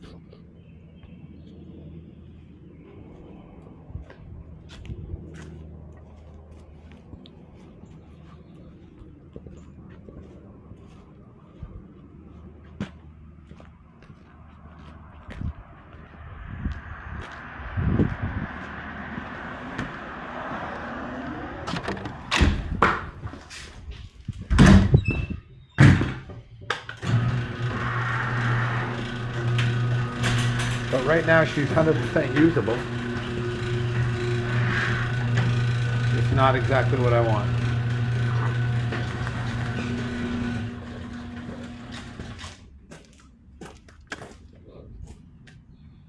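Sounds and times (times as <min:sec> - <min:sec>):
door thudding and rattling: 0:21.7 - 0:23.3, 0:24.4 - 0:36.3
motor humming: 0:27.0 - 0:42.4.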